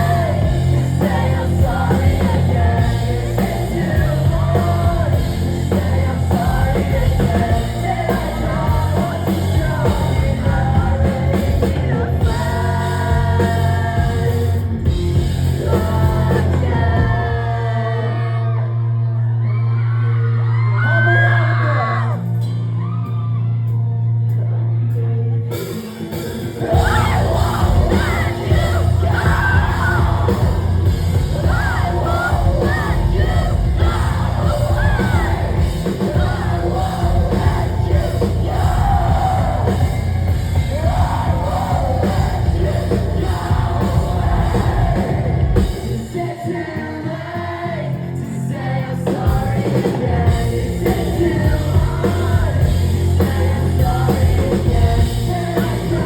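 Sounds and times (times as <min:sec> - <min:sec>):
heavy rock band playing: 0:00.0 - 0:18.6, 0:20.5 - 0:56.0
person singing and yelling: 0:26.5 - 0:47.7.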